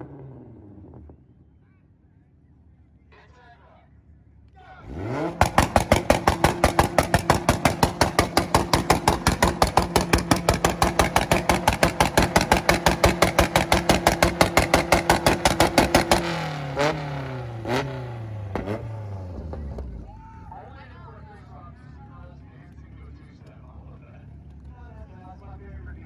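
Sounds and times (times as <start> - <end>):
car engine on launch limiter: 4.8 - 20.6
exhaust banging and popping: 4.9 - 20.1.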